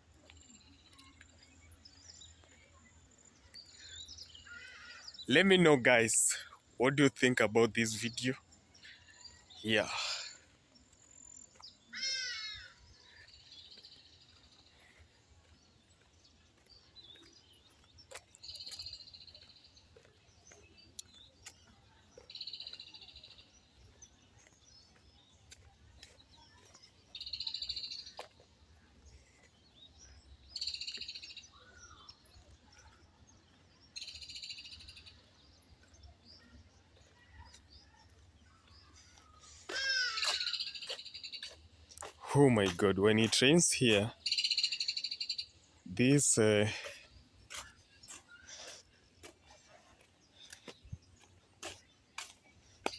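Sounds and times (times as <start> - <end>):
bird chirps: 29.4 - 52.9.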